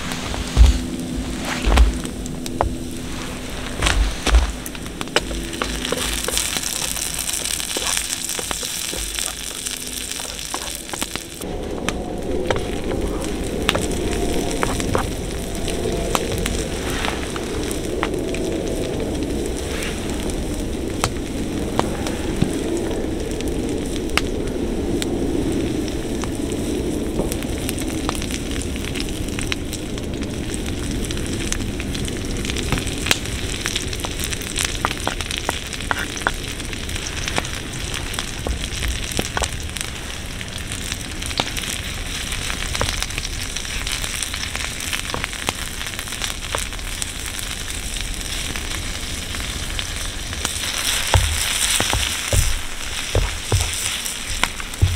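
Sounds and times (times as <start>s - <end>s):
fire crackling: 0.0s - 54.9s.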